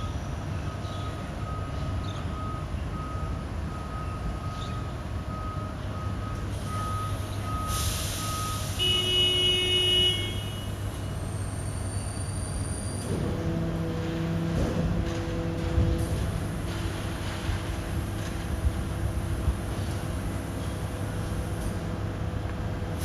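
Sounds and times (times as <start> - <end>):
reversing alarm beeping: 0.0 - 9.3
truck low hum: 0.0 - 23.0.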